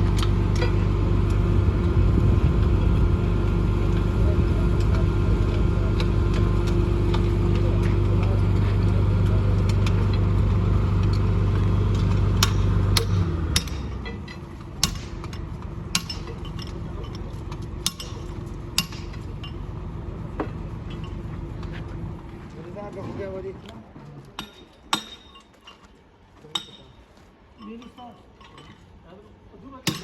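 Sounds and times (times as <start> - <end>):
machine humming: 0.0 - 22.6.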